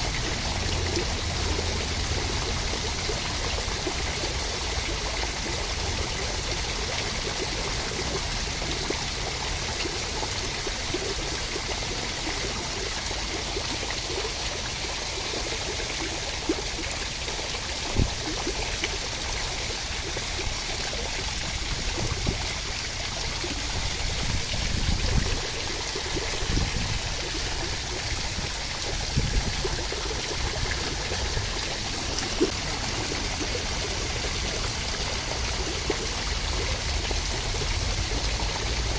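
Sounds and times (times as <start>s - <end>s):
steady rain: 17.3s - 38.9s.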